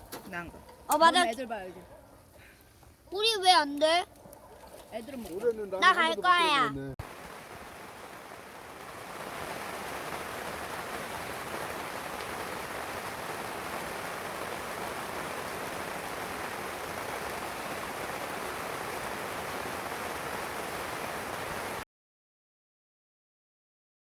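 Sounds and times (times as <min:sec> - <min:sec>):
steady hiss: 0:07.0 - 0:21.8.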